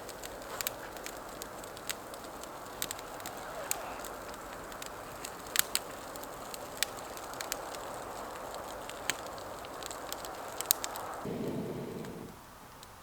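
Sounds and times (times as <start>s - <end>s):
campfire hissing and crackling: 0.0s - 13.0s
low rushing sound: 11.3s - 12.6s.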